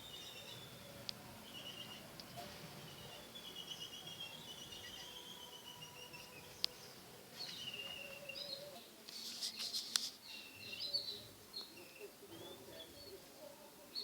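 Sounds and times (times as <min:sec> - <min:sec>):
birds chirping and calling: 0:00.0 - 0:14.0.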